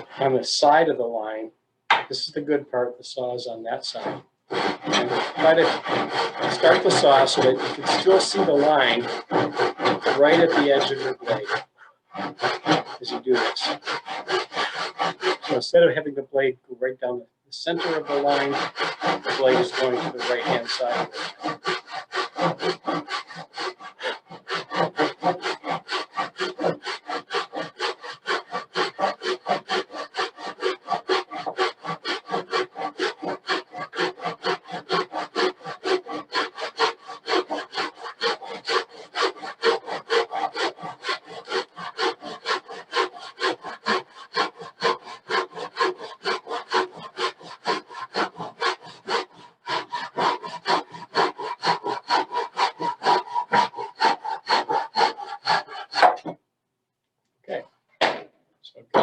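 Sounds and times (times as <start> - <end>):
hand saw cutting wood: 0.0 - 16.3, 17.6 - 56.4.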